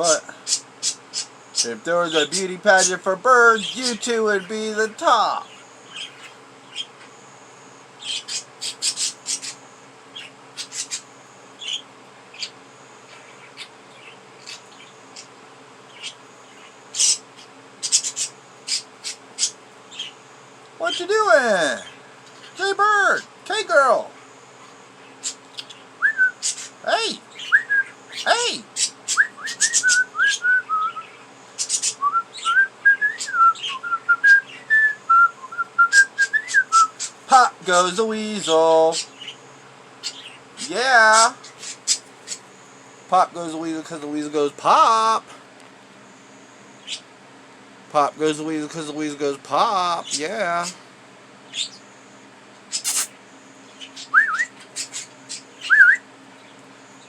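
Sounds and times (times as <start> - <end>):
budgerigars chirping: 0.0 - 7.2, 8.0 - 20.2, 25.0 - 32.5, 36.5 - 39.4, 40.0 - 42.5, 46.8 - 47.1, 51.5 - 51.9, 52.7 - 53.1, 53.7 - 56.6.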